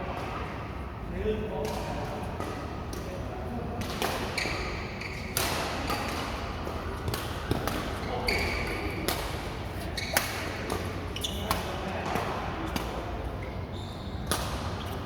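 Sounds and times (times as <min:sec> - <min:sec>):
badminton rackets hitting shuttlecock: 0:05.3 - 0:13.0.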